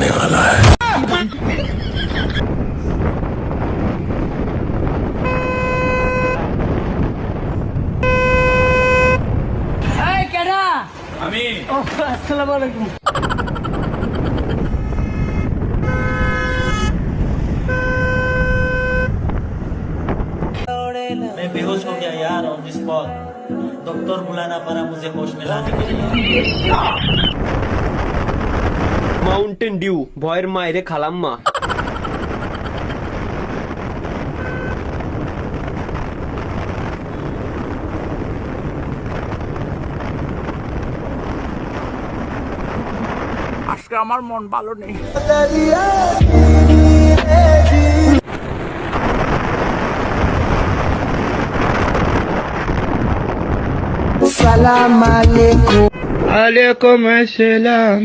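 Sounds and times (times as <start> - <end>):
wind rush on microphone: 0.0 - 12.3, 12.9 - 20.7, 25.6 - 29.6, 31.5 - 43.9, 47.8 - 55.3, 55.9 - 56.6
road and engine noise: 0.0 - 20.7, 25.6 - 29.5, 31.4 - 56.7
vehicle horn blasts: 5.2 - 6.5, 8.0 - 9.2, 14.8 - 19.2, 34.3 - 35.0.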